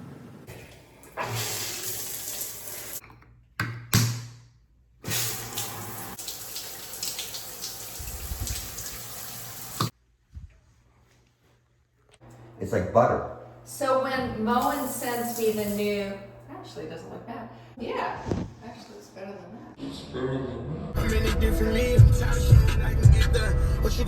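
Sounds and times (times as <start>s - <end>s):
shower water running: 0.5s - 3.0s, 5.0s - 9.9s, 14.5s - 16.0s.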